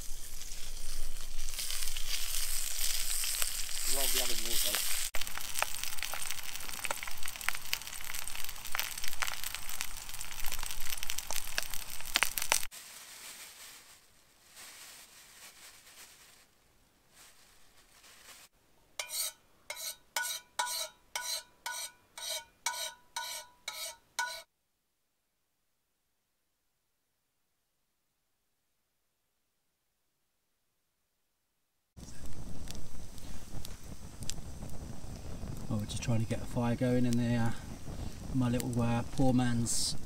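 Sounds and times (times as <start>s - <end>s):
sausages sizzling in a pan: 0.0s - 16.2s, 32.0s - 40.0s.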